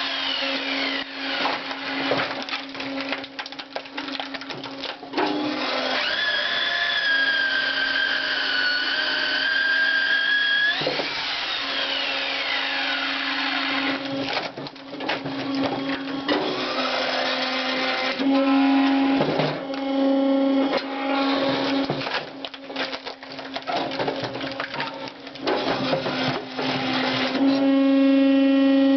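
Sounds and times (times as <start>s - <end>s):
wood-processing machine humming: 0.0s - 28.9s
wood cracking and crunching: 0.2s - 8.8s, 10.4s - 18.1s, 18.9s - 27.5s
snapping and crackling: 0.8s - 5.2s, 20.8s - 27.4s.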